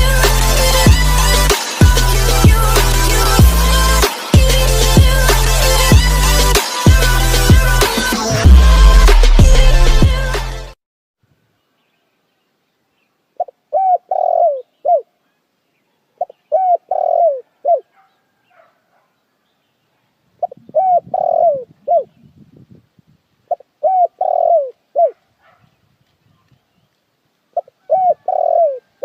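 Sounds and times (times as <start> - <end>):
dove cooing: 13.4 - 15.1, 16.2 - 18.4, 20.4 - 22.3, 23.5 - 25.2, 27.6 - 29.0.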